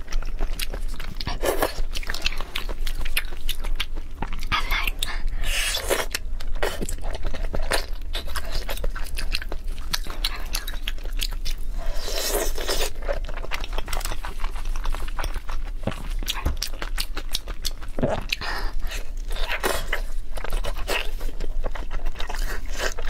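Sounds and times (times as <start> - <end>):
wet chewing and smacking: 0.0 - 23.0.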